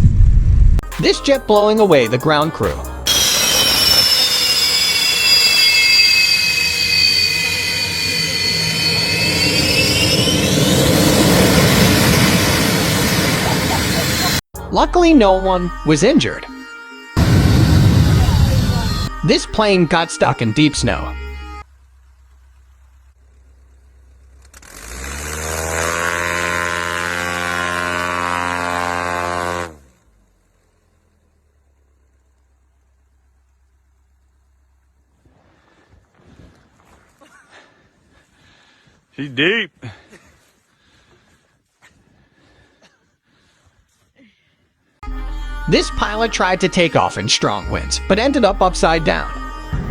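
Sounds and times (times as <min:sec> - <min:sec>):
propeller engine revving: 0:03.0 - 0:14.5, 0:21.8 - 0:32.1
jet engine rushing roar: 0:03.1 - 0:14.4, 0:17.2 - 0:19.2
jet engine turbine whine: 0:03.1 - 0:14.4, 0:17.2 - 0:19.8.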